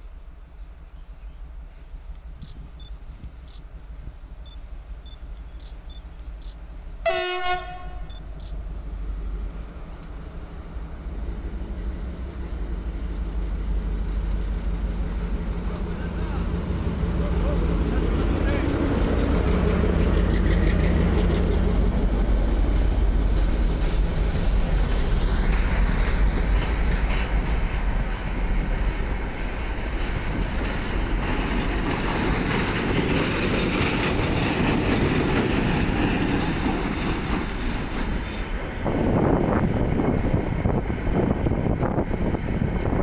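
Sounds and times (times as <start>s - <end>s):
diesel locomotive rumble: 0.0s - 43.0s
freight wagon wheels rumbling: 11.5s - 43.0s.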